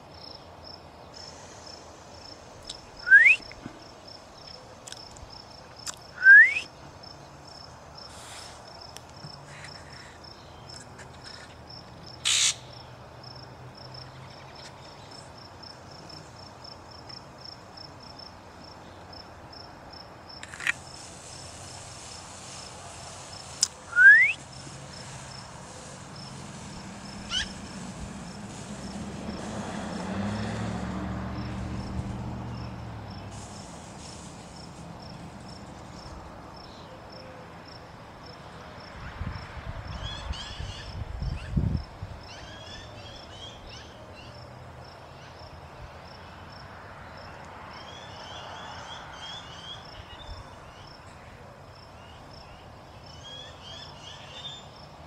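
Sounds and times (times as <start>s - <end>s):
bird whistled calls: 3.0s - 3.6s, 6.2s - 6.7s, 23.9s - 24.4s, 27.3s - 27.6s.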